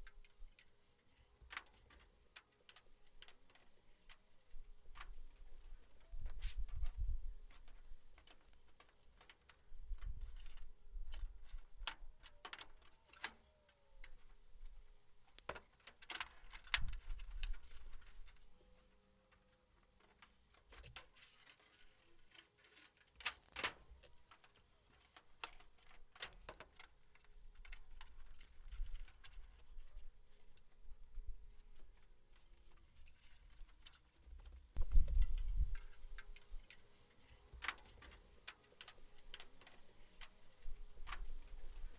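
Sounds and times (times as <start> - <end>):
light metal clicks and taps: 7.6 - 17.9.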